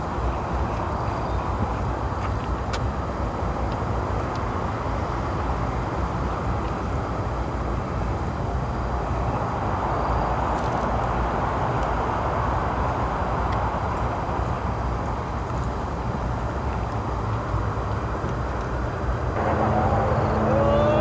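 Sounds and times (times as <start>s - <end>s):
outdoor rushing rumble: 19.2s - 21.0s.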